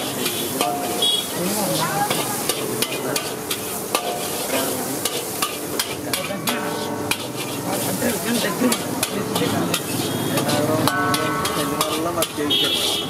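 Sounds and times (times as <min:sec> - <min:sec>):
metal spatula scraping a pan: 0:00.0 - 0:12.9
eggs sizzling in a wok: 0:00.0 - 0:13.0
spatula clicking against pan: 0:05.0 - 0:07.4, 0:08.7 - 0:12.4.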